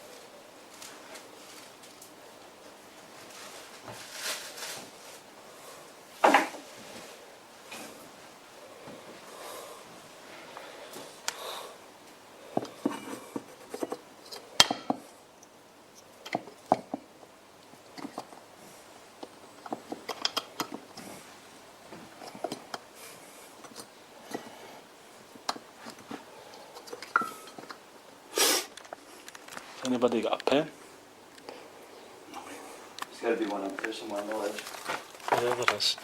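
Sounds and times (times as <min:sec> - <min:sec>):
paper rustling: 0:03.2 - 0:05.3, 0:33.3 - 0:36.0.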